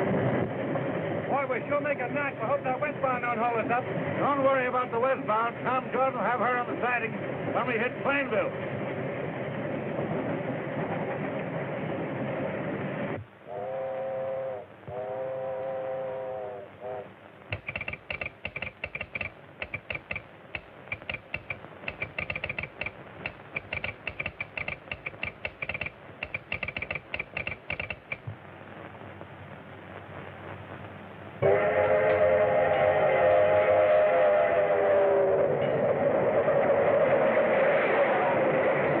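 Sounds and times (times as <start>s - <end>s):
steam locomotive running: 13.5s - 28.3s, 31.4s - 38.9s
rapid irregular clicking: 17.5s - 28.4s.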